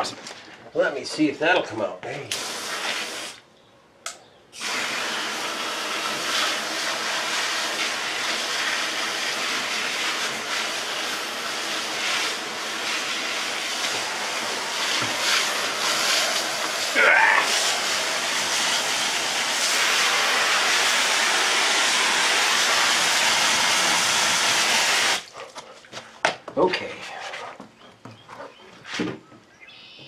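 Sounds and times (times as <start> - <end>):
water jet spraying metal rim: 2.3 - 3.4, 4.6 - 25.3.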